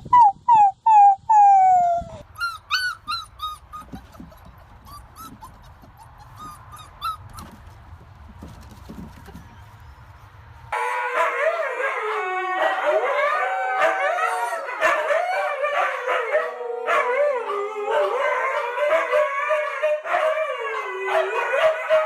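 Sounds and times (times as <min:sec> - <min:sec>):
dogs howling together: 0:10.8 - 0:22.0.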